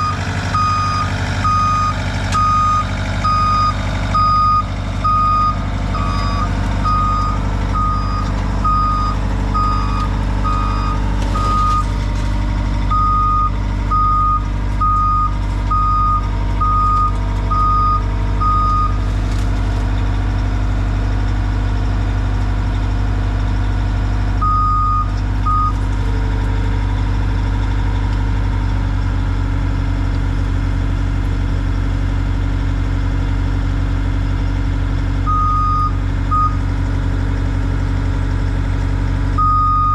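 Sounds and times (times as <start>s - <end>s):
backup alarm beeping: 0.0s - 11.9s, 12.9s - 19.0s, 24.4s - 25.8s, 35.3s - 36.6s, 39.4s - 39.9s
skid steer engine running: 0.0s - 39.9s.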